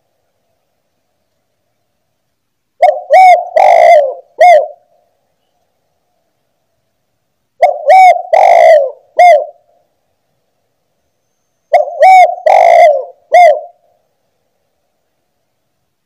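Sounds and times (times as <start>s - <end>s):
dove cooing: 2.8s - 4.9s, 7.6s - 9.8s, 11.7s - 14.0s.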